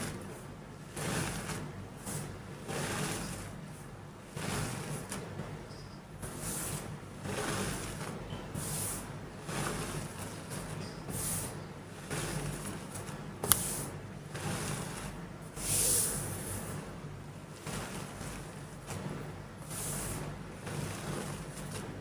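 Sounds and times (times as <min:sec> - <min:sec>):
chalk being crushed: 0:00.9 - 0:03.6, 0:06.2 - 0:16.2.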